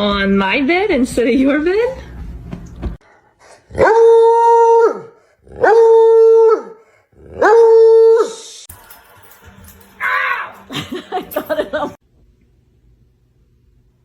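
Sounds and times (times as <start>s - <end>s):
dog howling: 10.0s - 10.7s.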